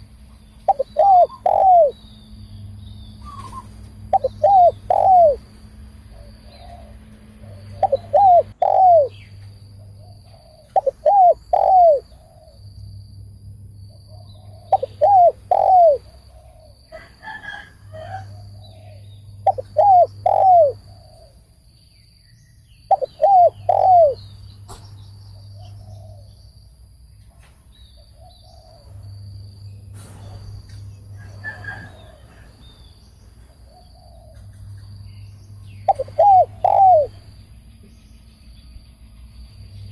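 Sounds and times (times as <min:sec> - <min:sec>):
dove cooing: 0:00.7 - 0:02.0, 0:03.2 - 0:05.5, 0:06.1 - 0:09.2, 0:10.0 - 0:12.6, 0:14.2 - 0:16.8, 0:17.5 - 0:21.4, 0:22.9 - 0:24.2, 0:25.6 - 0:26.3, 0:35.9 - 0:37.2.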